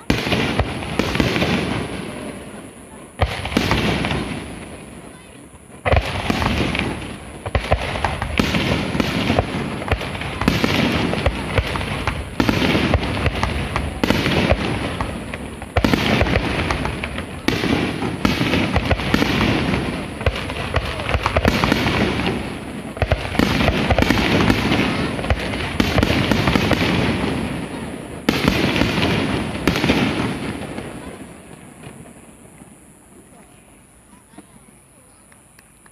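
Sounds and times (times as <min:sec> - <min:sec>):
firework shells bursting: 0:05.7 - 0:31.1.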